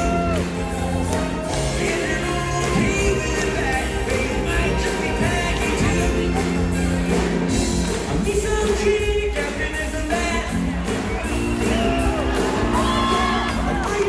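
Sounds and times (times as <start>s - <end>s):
shouted voices: 0.0s - 7.1s
live rock band music: 0.0s - 14.0s
person singing: 0.0s - 14.0s.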